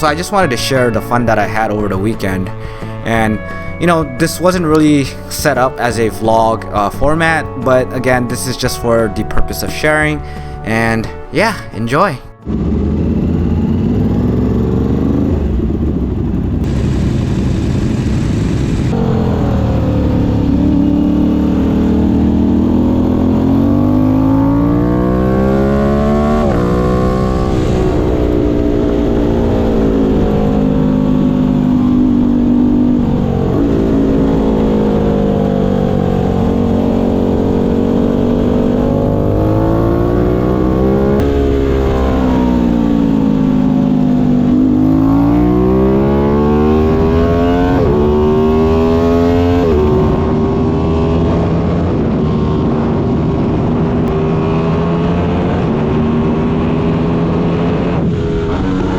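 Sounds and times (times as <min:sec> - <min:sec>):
motorcycle engine at high revs: 0:12.4 - 0:58.9.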